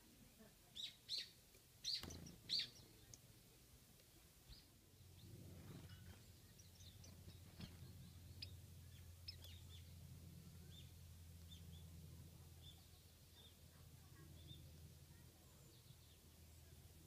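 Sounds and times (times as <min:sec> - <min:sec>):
birds chirping: 0:00.8 - 0:03.2, 0:04.0 - 0:16.7
steady low hum: 0:02.1 - 0:17.0.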